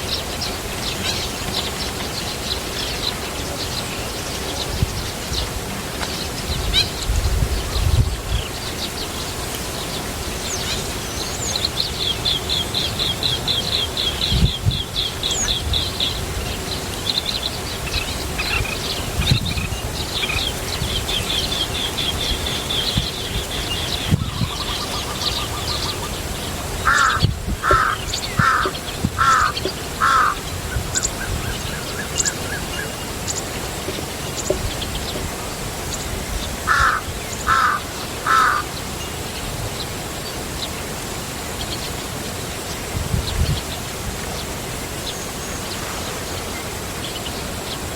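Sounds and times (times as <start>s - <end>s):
harsh caw-like bird calls: 26.8s - 30.5s, 36.6s - 38.7s
birds calling high repeated notes: 26.8s - 33.5s.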